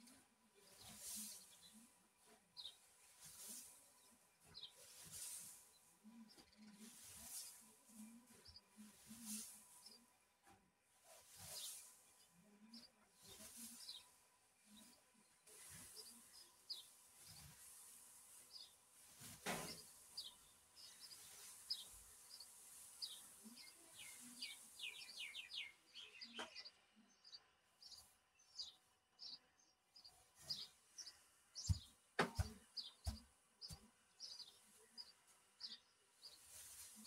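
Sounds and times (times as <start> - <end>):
small birds chirping: 0.0 - 37.0
dull thumps: 31.6 - 33.9.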